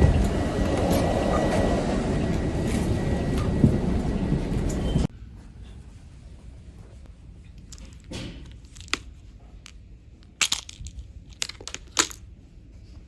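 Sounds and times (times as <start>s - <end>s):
objects clicking and knocking: 7.6s - 12.3s.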